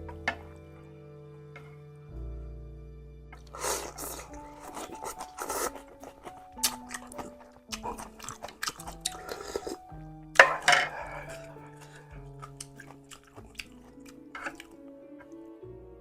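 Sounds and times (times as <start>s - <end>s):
background music with held notes: 0.0s - 16.0s
person chewing food: 3.4s - 14.8s.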